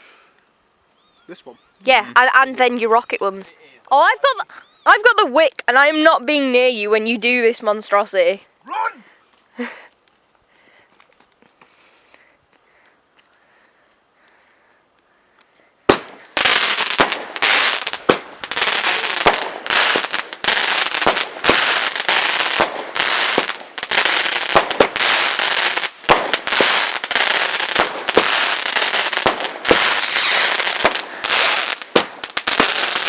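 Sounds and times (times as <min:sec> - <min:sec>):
firework bangs: 0:15.9 - 0:33.0
fireworks crackling: 0:15.9 - 0:33.0.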